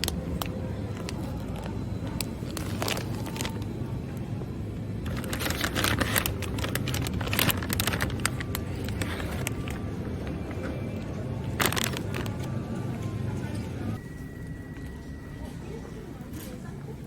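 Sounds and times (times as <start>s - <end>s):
steady low hum: 0.0s - 17.0s
sharp clicks and crackles: 5.1s - 9.9s.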